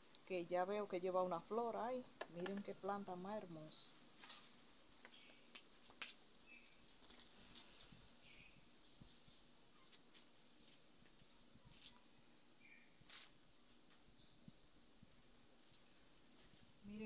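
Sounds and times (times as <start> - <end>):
faint bird chirps: 6.4 - 6.8, 7.4 - 13.1.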